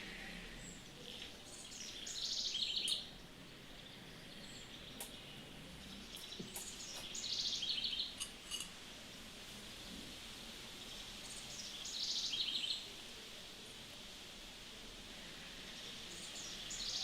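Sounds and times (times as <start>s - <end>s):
steady background noise: 0.0s - 17.0s
faint clicks: 4.9s - 5.2s.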